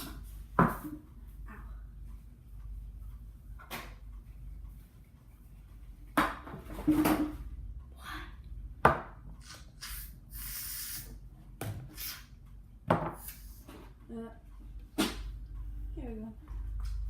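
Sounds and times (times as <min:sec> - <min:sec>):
containers and utensils clattering: 0:06.5 - 0:07.4
short hiss: 0:09.8 - 0:11.2.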